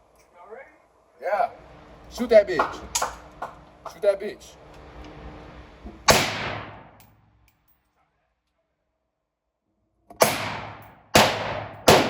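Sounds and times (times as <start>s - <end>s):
gunshots with echo: 6.1s - 7.0s, 10.2s - 12.0s.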